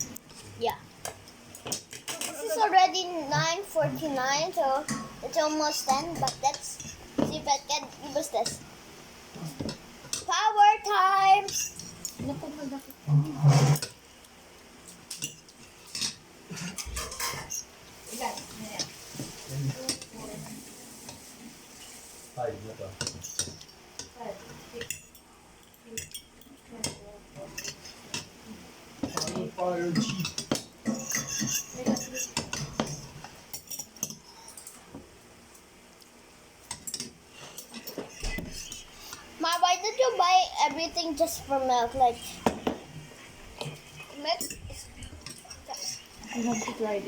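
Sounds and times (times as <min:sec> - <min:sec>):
utensils clinking against dishes: 0:15.1 - 0:17.7, 0:24.7 - 0:28.3, 0:29.0 - 0:34.8.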